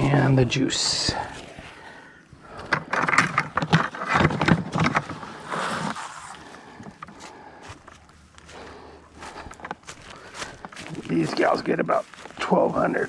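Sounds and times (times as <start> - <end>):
quiet shuffling: 0.0 - 13.0
bucket and gear clattering: 2.5 - 7.2.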